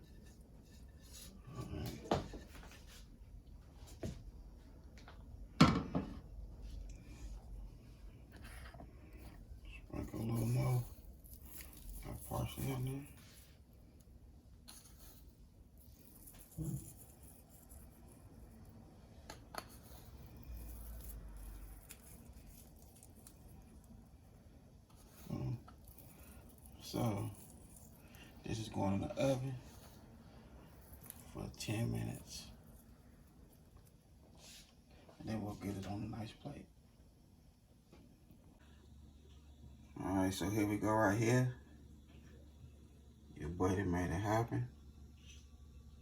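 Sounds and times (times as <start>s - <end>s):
knocks and bumps in a kitchen: 5.5s - 6.3s.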